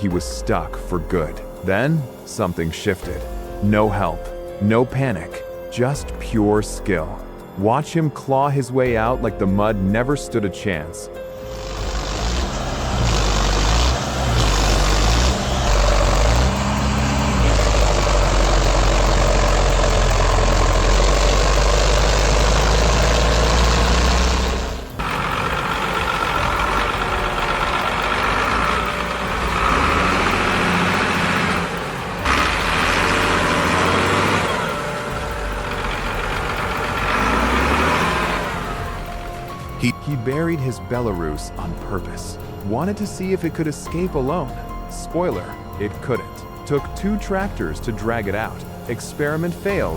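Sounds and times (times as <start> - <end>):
tractor engine working under load: 11.4 - 42.1
engine noise: 11.4 - 44.6.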